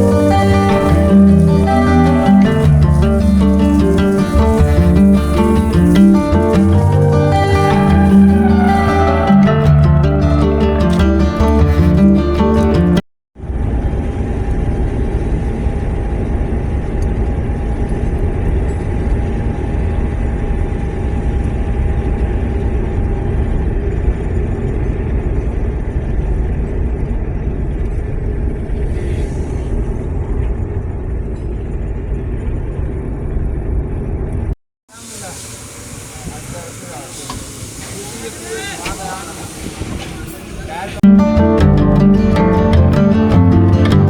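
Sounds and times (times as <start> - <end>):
music: 0.0 - 13.0, 41.0 - 44.0
car running rumble: 0.0 - 34.5.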